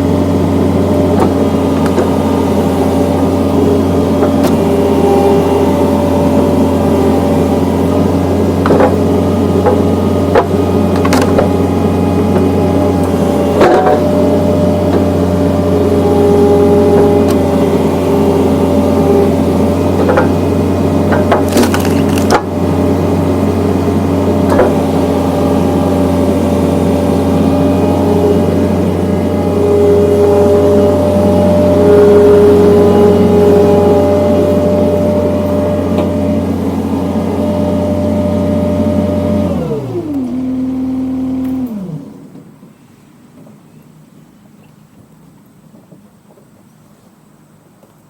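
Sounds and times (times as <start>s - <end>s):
skid steer engine running: 0.0s - 48.0s
wood cracking and splintering: 21.1s - 22.5s.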